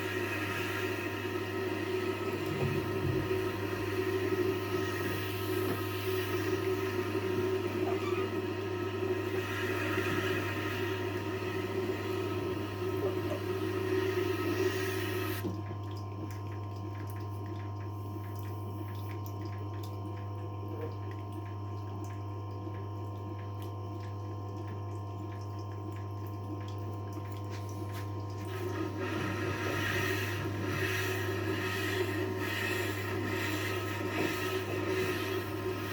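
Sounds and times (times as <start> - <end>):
motor hum: 0.0 - 35.9
water sounds: 0.0 - 35.9.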